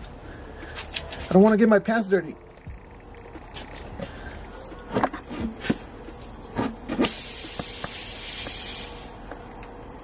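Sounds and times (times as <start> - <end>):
air hissing from tire: 7.0 - 9.3.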